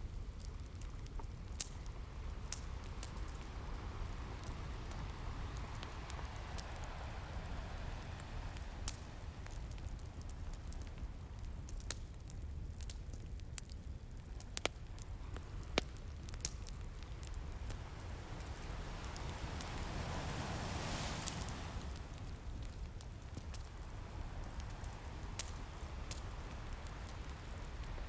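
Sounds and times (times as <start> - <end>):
wood fire crackling and popping: 0.0 - 28.0
ocean surf rumble: 1.8 - 11.4, 15.0 - 28.0
wave washing in: 2.4 - 10.2, 16.4 - 28.0.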